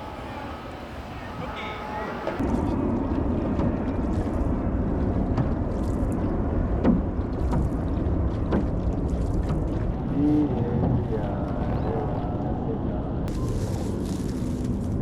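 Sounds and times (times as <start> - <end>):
water splashing: 0.0 - 15.0
wind buffeting microphone: 0.0 - 15.0.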